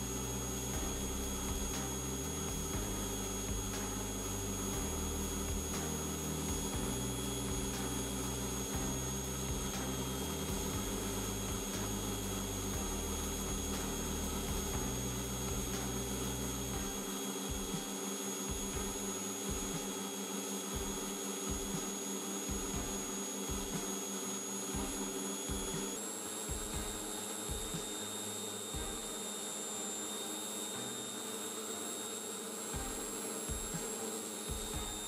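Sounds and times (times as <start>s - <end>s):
angle grinder motor whine: 0.0s - 35.0s.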